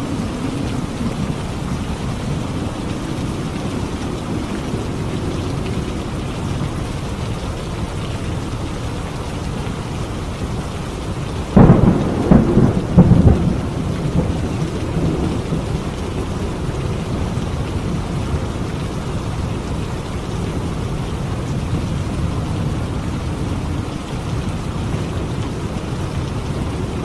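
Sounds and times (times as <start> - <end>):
thunderclap cracking and rumbling: 0.0 - 9.6, 10.5 - 27.0
heavy rain: 0.0 - 27.0.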